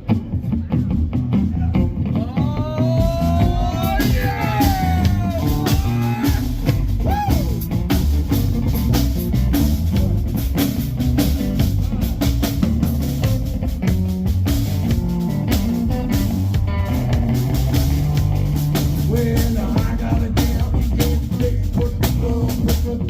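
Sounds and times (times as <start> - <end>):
bass: 0.0 - 23.0
bending lead guitar line: 0.0 - 23.0
drum kit: 0.0 - 23.0.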